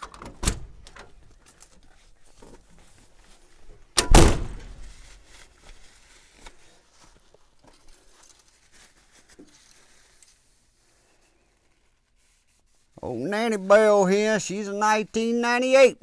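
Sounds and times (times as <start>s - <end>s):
heavy thunk on truck metal: 4.0s - 4.8s.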